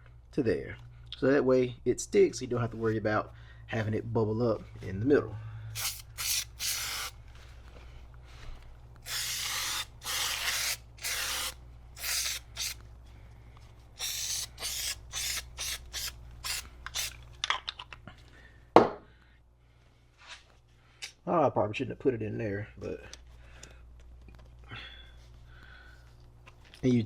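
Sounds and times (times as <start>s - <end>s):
aerosol can spraying: 5.8s - 7.2s, 9.0s - 12.8s, 14.0s - 17.2s.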